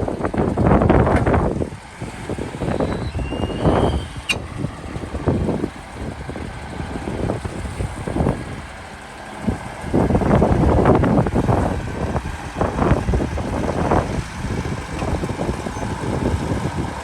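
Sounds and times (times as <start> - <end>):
heavy diesel machinery working: 0.0 - 17.0
thin high squeal: 2.6 - 4.4.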